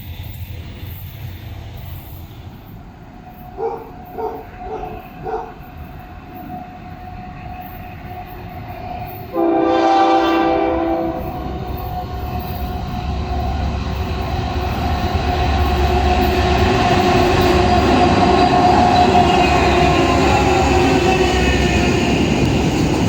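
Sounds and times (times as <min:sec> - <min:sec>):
locomotive air horn: 0:09.3 - 0:12.0.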